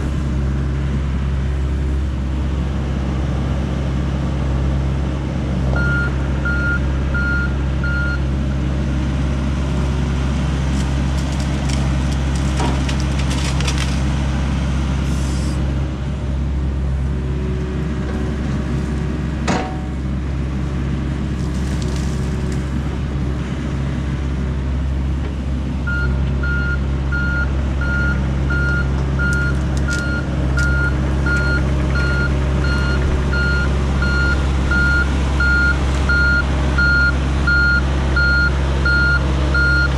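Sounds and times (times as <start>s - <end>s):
diesel excavator engine running: 0.0s - 39.9s
travel alarm beeping: 5.8s - 8.2s, 25.9s - 39.9s.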